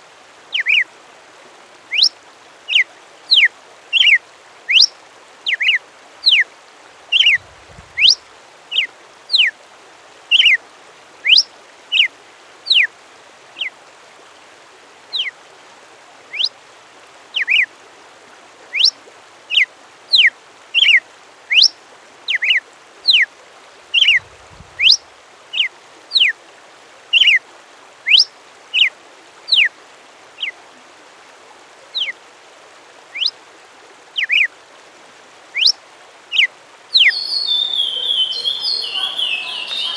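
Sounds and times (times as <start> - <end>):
steady background hiss: 0.0 - 39.9
bird whistling sharp notes: 37.0 - 39.9.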